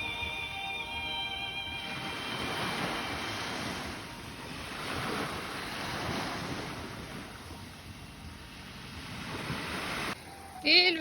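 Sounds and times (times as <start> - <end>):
sea waves washing onto shore: 1.8 - 7.6, 8.5 - 10.2
wind buffeting microphone: 1.9 - 10.2.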